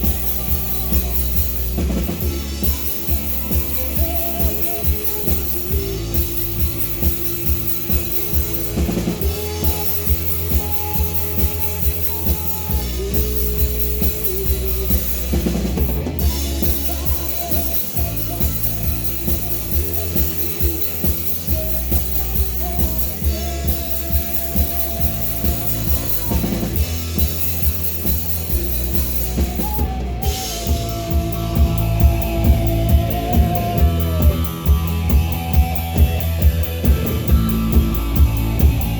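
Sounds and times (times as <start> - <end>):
drum kit beat: 0.0 - 38.9
live rock band playing: 0.0 - 38.9.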